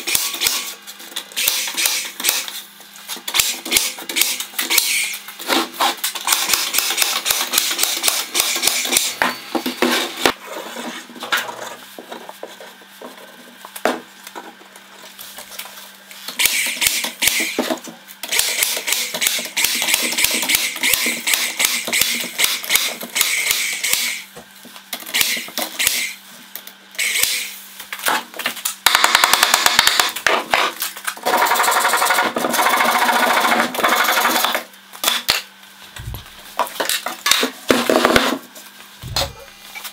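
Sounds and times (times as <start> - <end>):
sharp clicks and knocks: 36.0 - 37.5.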